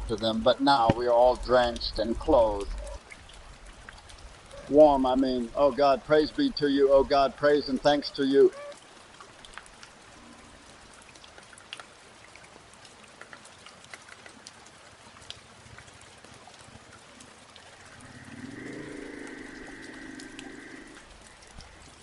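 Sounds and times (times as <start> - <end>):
raindrops ticking on surfaces: 0.0 - 22.0.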